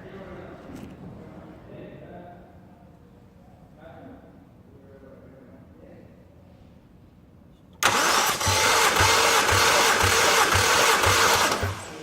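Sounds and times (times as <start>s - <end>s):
starter motor cranking engine: 7.8s - 12.0s.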